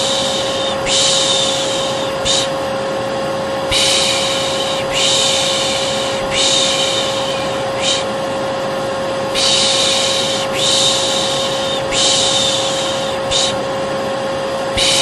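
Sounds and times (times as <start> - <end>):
person shushing: 0.0 - 2.6, 3.7 - 8.2, 9.4 - 13.6, 14.8 - 15.0
vacuum cleaner motor humming: 0.0 - 15.0.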